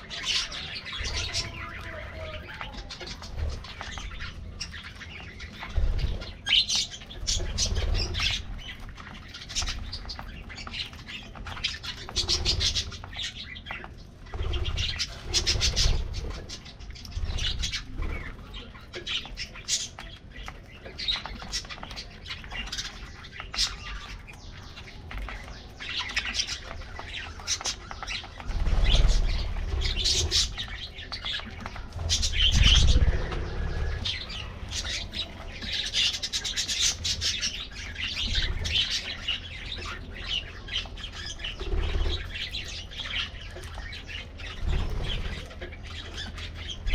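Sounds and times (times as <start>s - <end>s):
budgerigars chattering: 0.0s - 46.9s
wing flutters: 14.2s - 19.1s, 26.0s - 37.3s.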